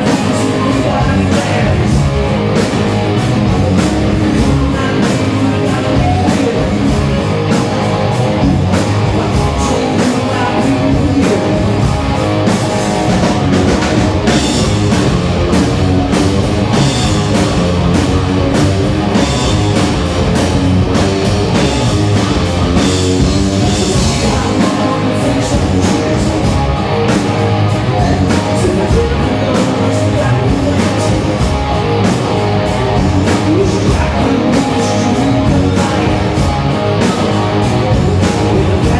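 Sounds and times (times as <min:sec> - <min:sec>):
drum kit beat: 0:00.0 - 0:38.9
electric guitar: 0:00.0 - 0:38.9
rock music: 0:00.0 - 0:38.9.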